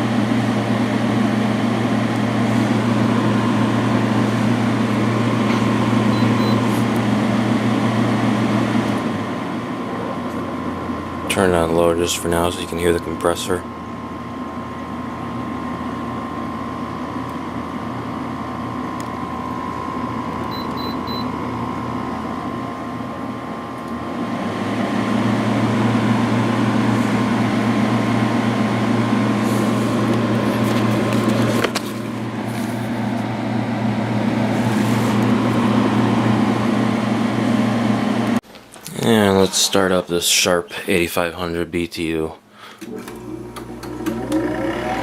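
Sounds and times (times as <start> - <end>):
air conditioner fan running: 0.0 - 45.0
compressor humming: 0.0 - 45.0
air conditioner click: 18.9 - 19.2, 23.7 - 24.0, 42.8 - 44.5.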